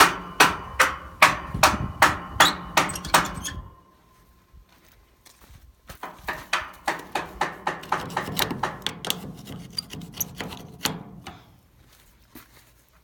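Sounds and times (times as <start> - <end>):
sharp knocks on metal: 0.0 - 3.7, 6.0 - 11.5.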